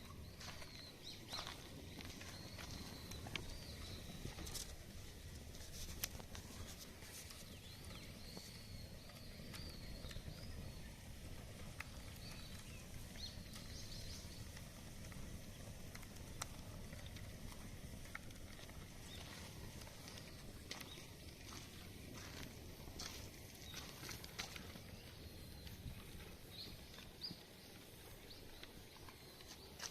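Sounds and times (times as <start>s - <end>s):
low steady rumble: 0.0s - 29.8s
bonfire crackling: 0.0s - 29.9s.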